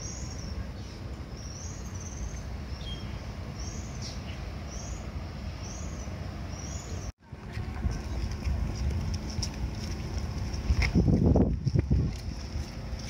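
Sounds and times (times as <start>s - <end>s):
bird calling: 0.0s - 7.1s
low outdoor rumble: 0.0s - 13.0s.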